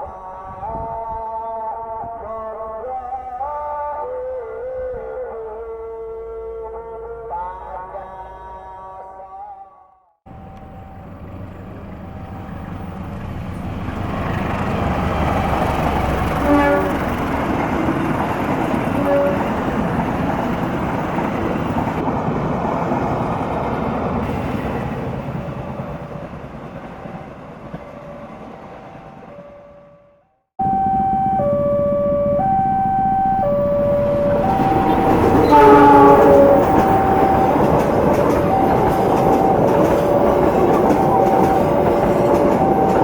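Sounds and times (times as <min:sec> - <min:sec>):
train passing: 0:10.3 - 0:43.0
train horn blasts: 0:16.4 - 0:18.0, 0:18.8 - 0:19.9, 0:30.6 - 0:43.0.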